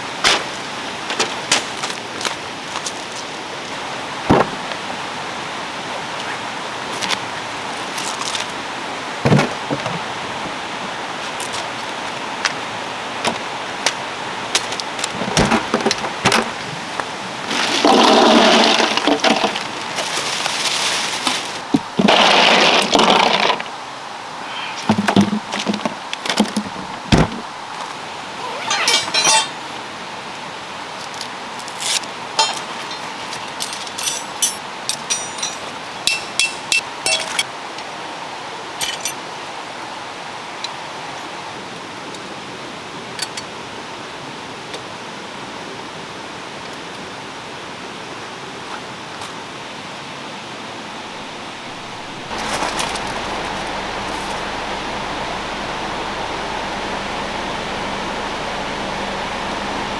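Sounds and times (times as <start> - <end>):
metal tent poles clinking: 28.4 - 29.8, 31.7 - 37.5, 38.8 - 39.2, 51.2 - 54.8.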